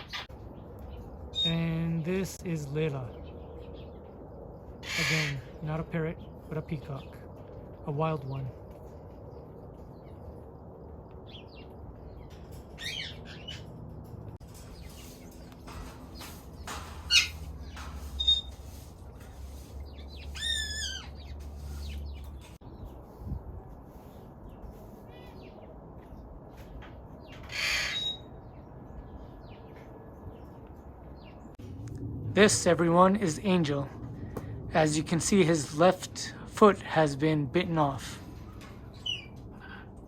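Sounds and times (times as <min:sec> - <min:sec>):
parrot squawking: 0:04.8 - 0:05.6, 0:17.0 - 0:17.5, 0:18.2 - 0:18.6, 0:20.2 - 0:22.0, 0:27.4 - 0:28.3
parrots chirping and whistling: 0:12.8 - 0:13.7, 0:14.8 - 0:18.7, 0:19.9 - 0:22.5, 0:27.4 - 0:28.4.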